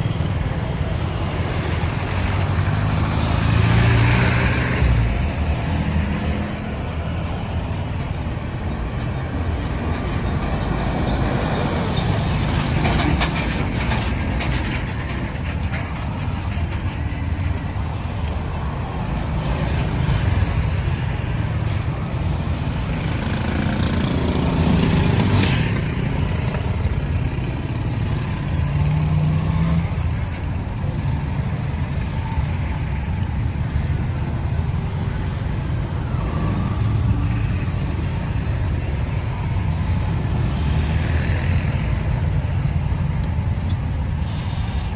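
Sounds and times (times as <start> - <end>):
vehicle passing close: 0.0 - 15.6
road traffic rumbling: 0.0 - 44.9.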